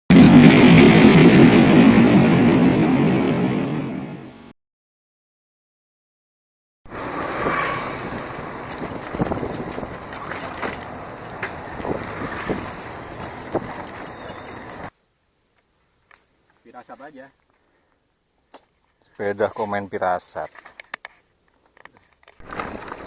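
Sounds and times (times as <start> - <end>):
bicycle knocks and rattles: 6.9 - 14.9, 21.8 - 23.0
bicycle riding on dirt trail: 6.9 - 14.9, 22.2 - 23.0.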